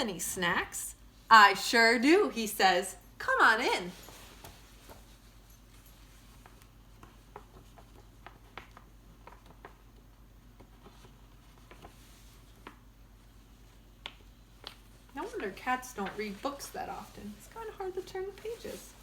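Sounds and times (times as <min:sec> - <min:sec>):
picture book pages turning: 0:06.4 - 0:19.0.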